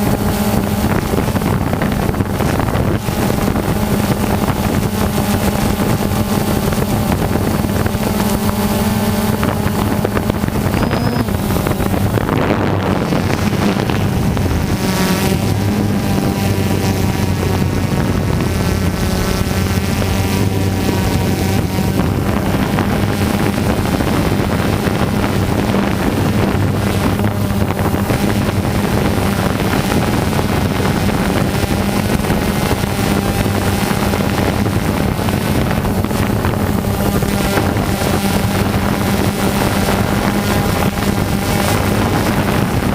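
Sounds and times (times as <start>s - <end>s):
small model engine running: 0.0s - 42.9s
wind buffeting microphone: 0.0s - 42.9s.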